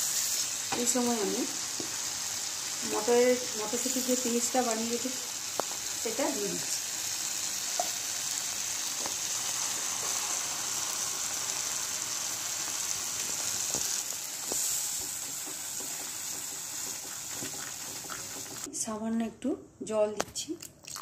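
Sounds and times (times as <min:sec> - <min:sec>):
spices sizzling in oil: 0:00.0 - 0:18.7
spatula knocking on pan: 0:14.9 - 0:18.7.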